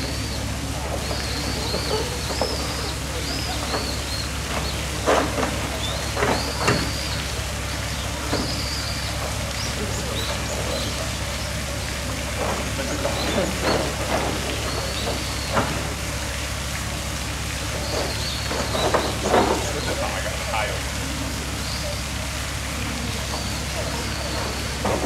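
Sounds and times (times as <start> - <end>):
running water hiss: 0.0 - 25.0.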